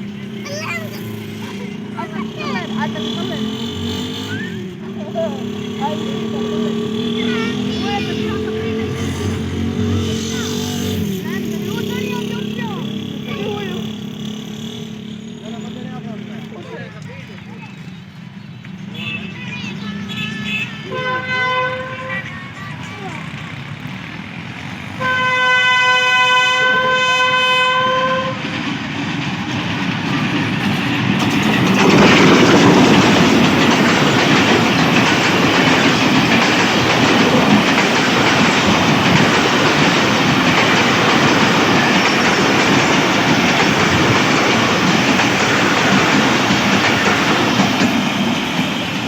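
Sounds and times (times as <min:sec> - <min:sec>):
train wheels rumbling on rails: 0:00.0 - 0:49.0
locomotive horn: 0:18.9 - 0:22.5, 0:25.0 - 0:28.6.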